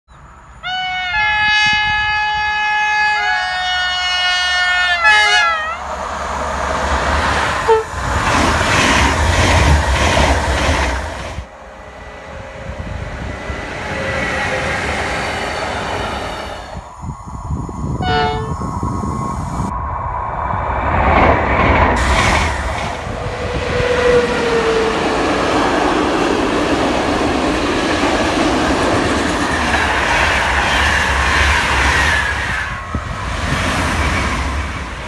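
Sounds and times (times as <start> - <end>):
train passing at speed: 0.2 - 35.0
train horn: 0.6 - 5.9, 7.6 - 8.0, 18.0 - 18.7
train wheels beating: 5.9 - 16.9.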